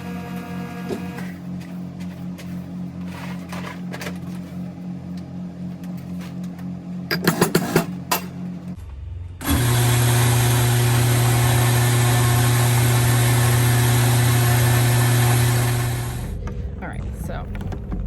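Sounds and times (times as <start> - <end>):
electric coffee grinder running: 0.0 - 1.4, 9.4 - 16.4.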